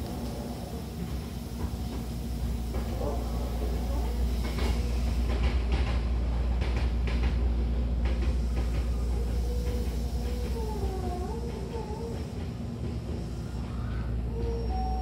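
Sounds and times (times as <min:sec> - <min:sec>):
train rumbling: 0:00.0 - 0:15.0
wavering squeal: 0:13.8 - 0:15.0.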